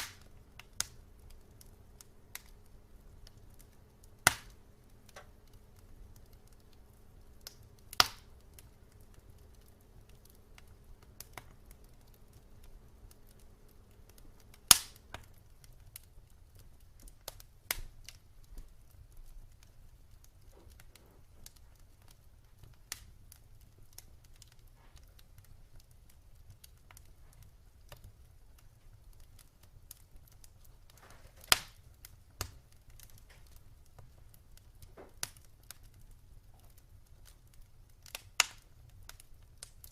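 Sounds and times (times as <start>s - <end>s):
faint low rumble: 0.0s - 29.9s
wood fire crackling: 0.0s - 39.9s.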